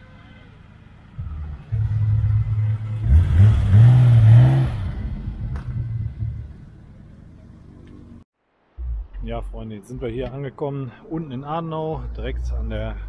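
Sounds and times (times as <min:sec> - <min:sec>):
car passing and accelerating: 0:01.1 - 0:08.2.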